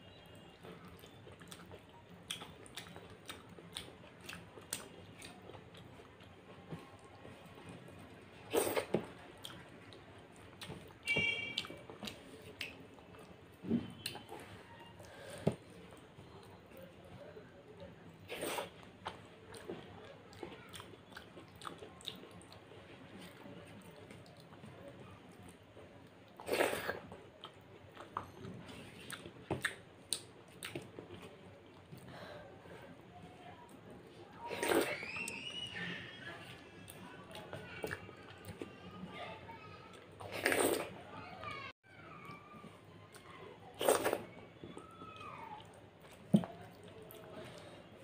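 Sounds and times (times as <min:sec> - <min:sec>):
wet chewing and mouth smacks: 0:00.8 - 0:06.4, 0:26.3 - 0:31.8.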